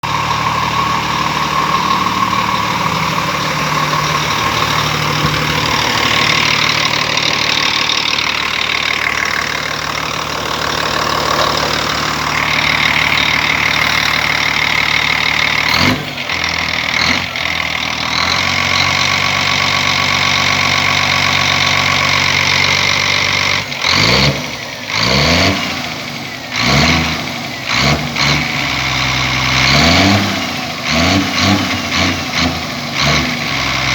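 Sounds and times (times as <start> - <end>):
diesel engine idling and revving: 0.0 - 33.9.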